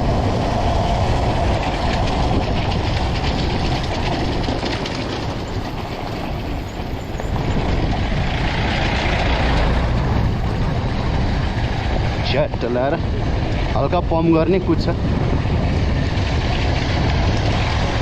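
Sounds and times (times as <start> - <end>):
dirt bike engine running: 0.0 - 12.4.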